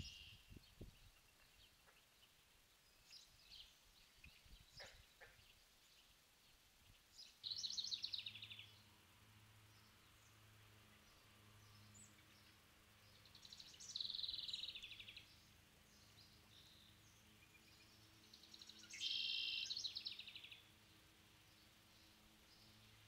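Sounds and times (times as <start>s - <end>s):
songbird trilling: 0.0s - 0.6s, 7.4s - 8.7s, 18.4s - 20.6s.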